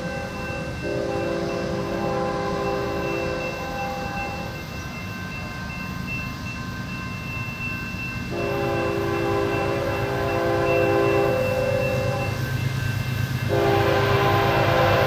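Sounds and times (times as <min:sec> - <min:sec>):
passing train rumble: 0:00.0 - 0:15.0
train air horn chord: 0:00.8 - 0:04.1, 0:08.3 - 0:12.3, 0:13.5 - 0:15.0.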